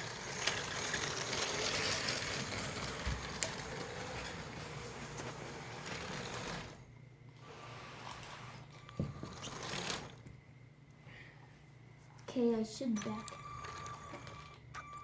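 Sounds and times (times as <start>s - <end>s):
toy train electric motor whirring: 0.0s - 10.2s.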